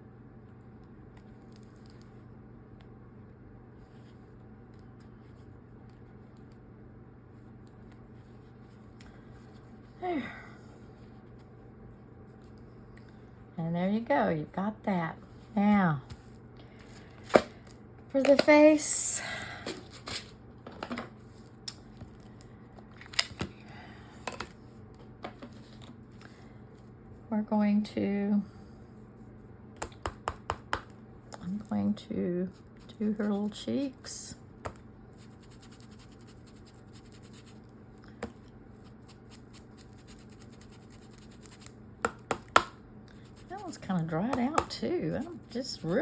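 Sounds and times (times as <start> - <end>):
scratchy rubbing on cloth: 35.2 - 37.6, 38.8 - 41.7.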